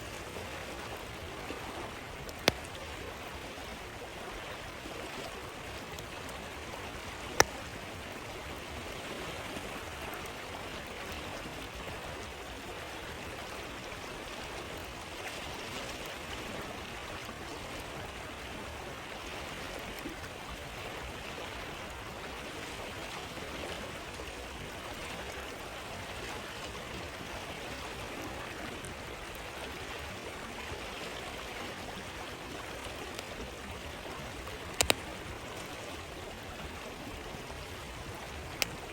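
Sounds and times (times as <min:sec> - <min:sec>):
stream flowing: 0:00.0 - 0:38.9
campfire pop: 0:02.2 - 0:02.9, 0:07.0 - 0:08.1, 0:34.7 - 0:35.2.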